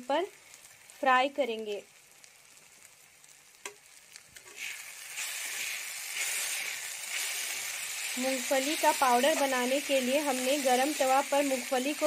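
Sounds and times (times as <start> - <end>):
masala sizzling in a pan: 0.0 - 12.0
spatula stirring: 4.4 - 11.7.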